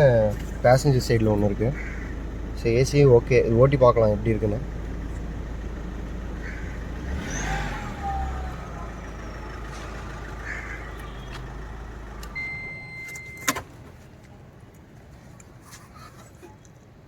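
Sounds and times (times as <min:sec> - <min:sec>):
diesel engine idling: 0:00.0 - 0:14.6
electronic beep: 0:12.4 - 0:13.5.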